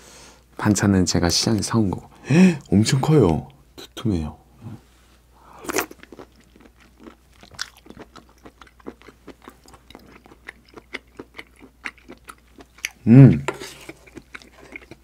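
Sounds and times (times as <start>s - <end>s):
person chewing with mouth clicks: 5.6s - 15.0s.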